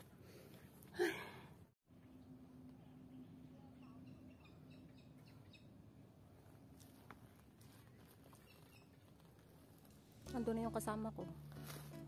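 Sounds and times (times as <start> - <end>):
low steady hum: 0.0 - 12.0
soft bird chirps: 2.8 - 5.8, 7.8 - 9.2.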